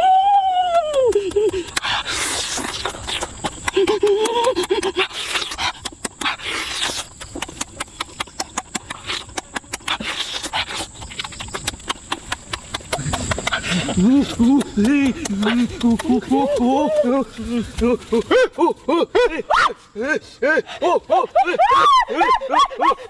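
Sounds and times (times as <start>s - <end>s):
person humming approval: 0.0s - 1.6s, 13.7s - 19.4s
crunching and chewing food: 0.4s - 18.7s.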